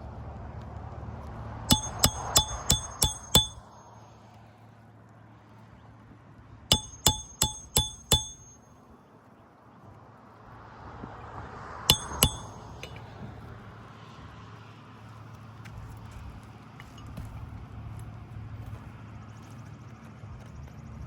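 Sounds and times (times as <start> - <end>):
hammer striking nail: 1.7 - 3.8, 6.7 - 8.6, 11.9 - 13.0.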